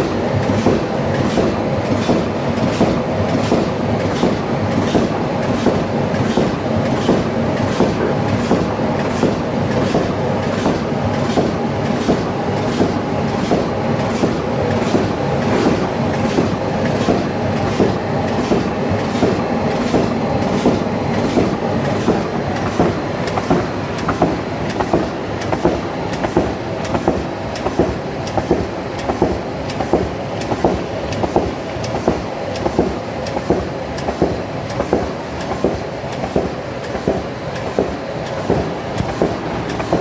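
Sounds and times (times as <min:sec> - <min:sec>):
machine mechanical clatter: 0:00.0 - 0:40.0
sharp machine clacks: 0:00.0 - 0:40.0.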